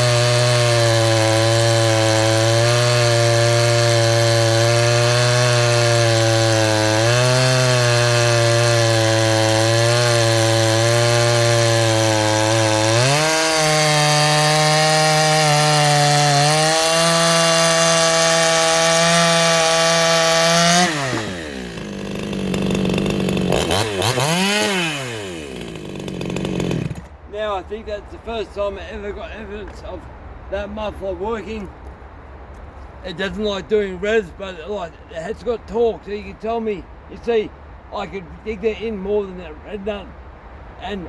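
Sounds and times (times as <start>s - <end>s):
chainsaw cutting wood: 0.0s - 27.2s.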